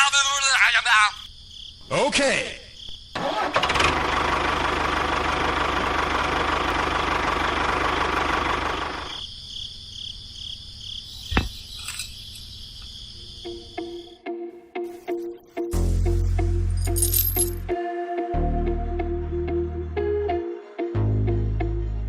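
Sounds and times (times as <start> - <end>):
small engine running: 3.2 - 9.2.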